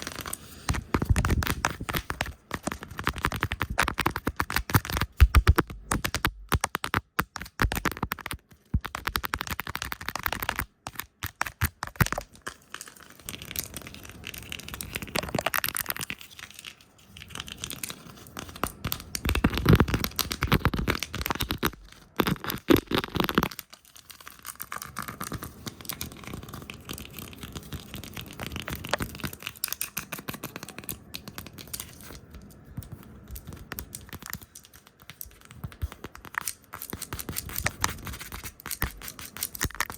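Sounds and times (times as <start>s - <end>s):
rapid irregular tapping: 0.0s - 12.3s.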